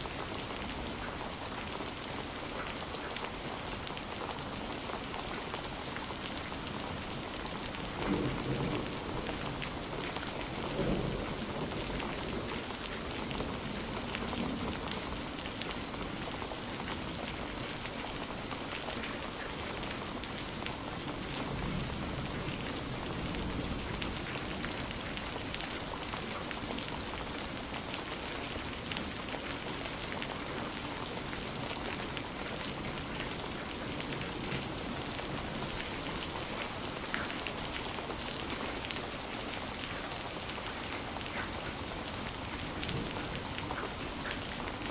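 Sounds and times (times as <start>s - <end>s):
steady rain falling: 0.0s - 44.9s
low rumble of thunder: 7.4s - 16.0s, 20.2s - 26.7s, 42.1s - 44.2s.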